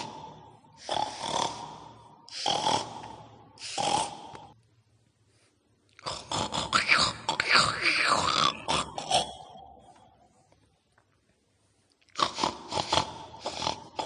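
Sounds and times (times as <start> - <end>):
harsh breathy pig-like snorts: 0.0 - 4.6, 6.0 - 9.4, 12.2 - 14.0.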